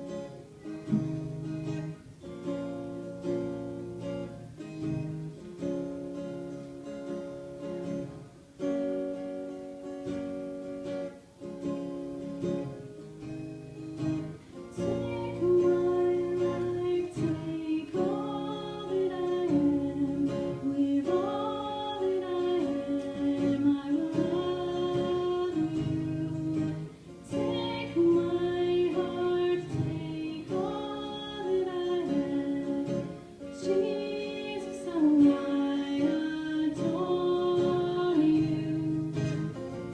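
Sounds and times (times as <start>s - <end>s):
acoustic guitar strumming chords: 0.0s - 39.9s
woman singing: 9.0s - 13.3s, 14.0s - 39.9s.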